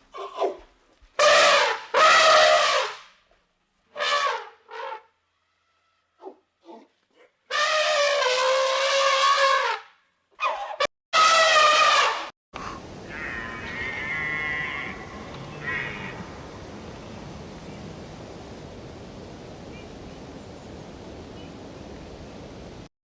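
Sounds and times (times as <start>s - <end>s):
outdoor background noise: 0.0s - 22.9s
faint high animal call: 13.0s - 16.4s
animal calling: 13.0s - 16.5s.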